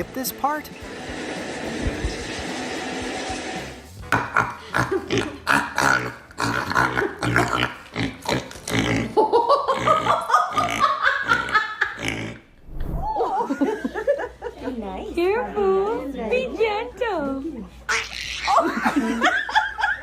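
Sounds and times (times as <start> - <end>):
dog grunting: 4.1 - 12.5.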